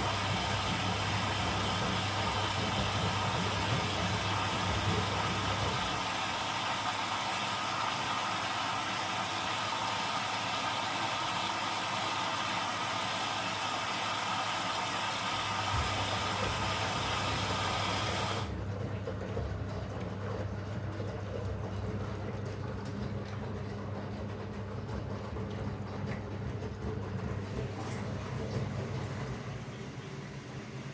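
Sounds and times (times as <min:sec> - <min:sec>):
washing machine rushing hiss: 0:00.0 - 0:18.5
washing machine low hum: 0:00.0 - 0:30.9.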